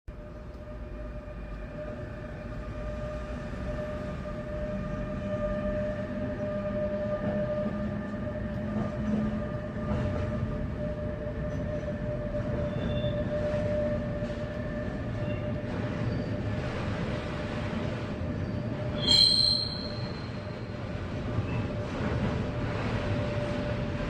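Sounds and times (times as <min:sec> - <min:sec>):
freight train wagons rumbling: 0:00.1 - 0:24.0
short high squeaks: 0:18.4 - 0:20.5.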